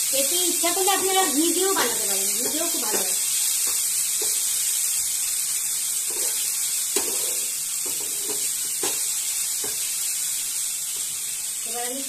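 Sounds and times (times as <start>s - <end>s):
vegetables sizzling in oil: 0.0s - 12.0s
wooden spatula scraping and knocking: 7.0s - 9.0s.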